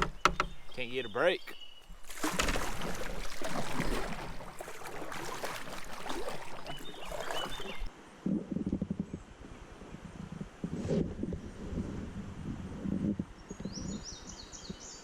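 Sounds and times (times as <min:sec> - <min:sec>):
water splashing around kayak: 0:00.0 - 0:07.9
knocks on kayak: 0:02.1 - 0:04.4.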